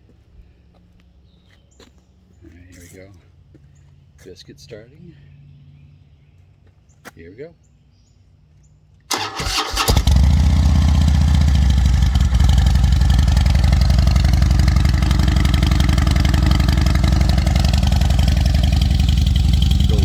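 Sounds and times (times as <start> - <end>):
motorcycle engine starting and idling: 9.1 - 20.0.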